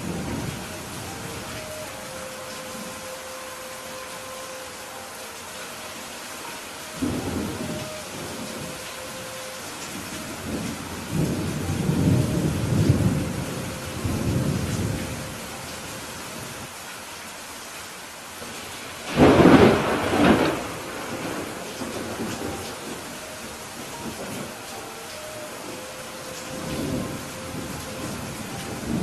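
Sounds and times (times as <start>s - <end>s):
thunder rumbling: 0.0s - 3.2s, 6.4s - 15.7s, 18.6s - 29.0s
steady rain: 0.0s - 29.0s
sharp thunderclap: 19.1s - 22.3s.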